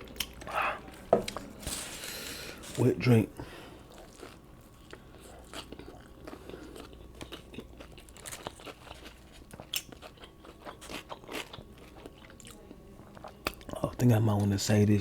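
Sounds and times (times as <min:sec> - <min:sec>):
chewing and biting food: 0:00.0 - 0:01.8, 0:03.8 - 0:14.0.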